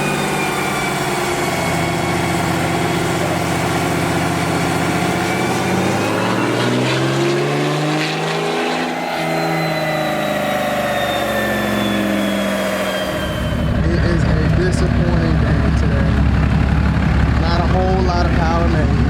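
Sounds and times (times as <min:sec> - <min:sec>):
turbo whistle: 0:00.0 - 0:07.4, 0:08.1 - 0:14.3
diesel engine revving under load: 0:00.0 - 0:19.0.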